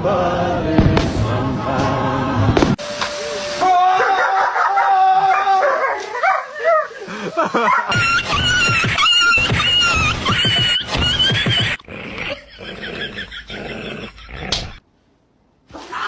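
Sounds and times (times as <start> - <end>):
dog howling: 3.6 - 8.0.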